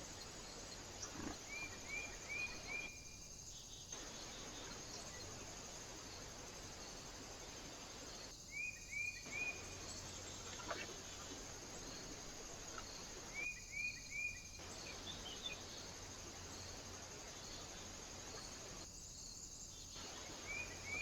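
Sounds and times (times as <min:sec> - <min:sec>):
high insect trill: 0:00.0 - 0:21.0.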